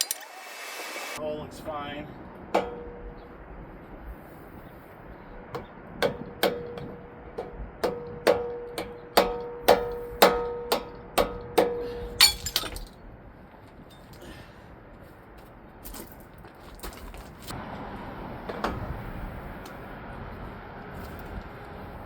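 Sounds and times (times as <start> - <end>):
hammer blows on steel: 2.6 - 3.2, 5.6 - 12.5.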